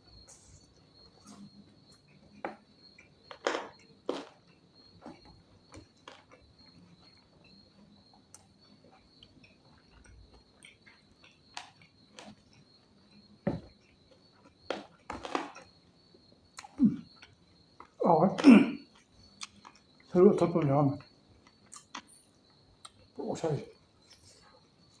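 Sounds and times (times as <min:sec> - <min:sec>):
mouth clicks and smacks chewing: 0:08.3 - 0:15.7, 0:16.5 - 0:18.0, 0:18.9 - 0:20.1, 0:21.0 - 0:23.2.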